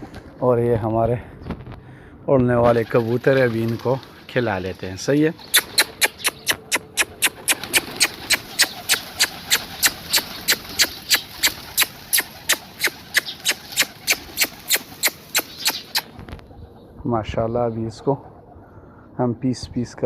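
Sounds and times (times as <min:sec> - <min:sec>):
rapid sharp clicking: 0:05.6 - 0:16.1.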